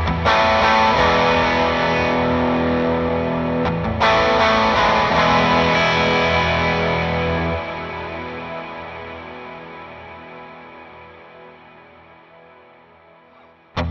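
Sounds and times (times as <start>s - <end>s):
electric guitar chords ringing: 0.0s - 13.9s.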